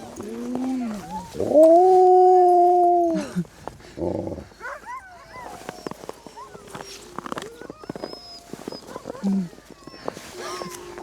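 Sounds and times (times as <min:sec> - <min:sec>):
dogs yipping and whining: 0:00.8 - 0:01.8, 0:04.6 - 0:11.0.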